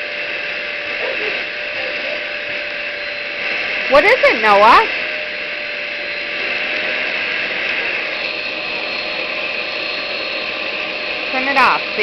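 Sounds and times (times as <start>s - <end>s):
hand-held vacuum cleaner running: 0.0s - 12.0s.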